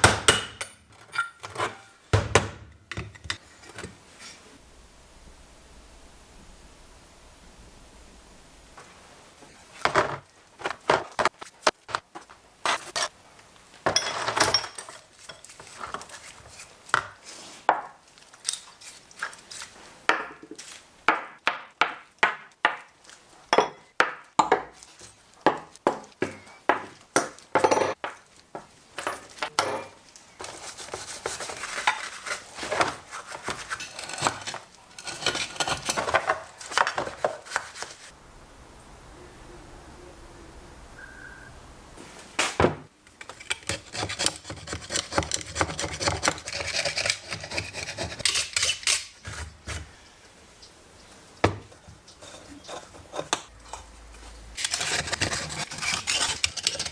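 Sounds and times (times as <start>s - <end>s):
metal tools clinking: 0.5s - 2.0s
metal parts rubbing and rattling: 30.4s - 38.1s, 54.2s - 56.9s.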